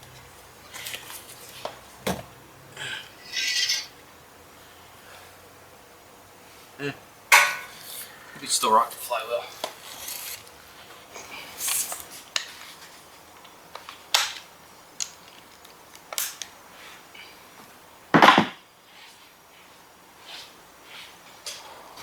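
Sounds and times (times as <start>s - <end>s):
metal tools clinking: 3.2s - 4.0s.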